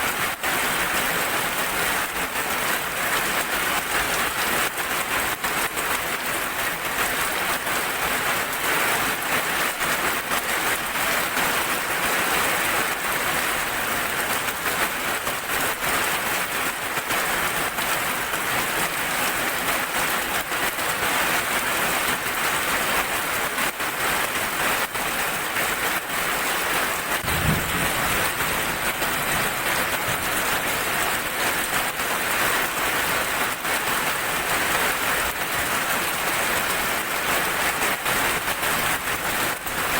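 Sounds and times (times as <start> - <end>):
heavy rain: 0.0 - 39.9
low rumble of thunder: 27.2 - 30.8.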